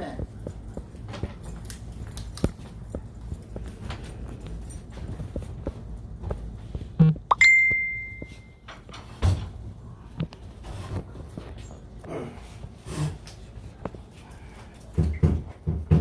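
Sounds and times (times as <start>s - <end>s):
sharp strike with high ringing tone: 7.3s - 8.5s.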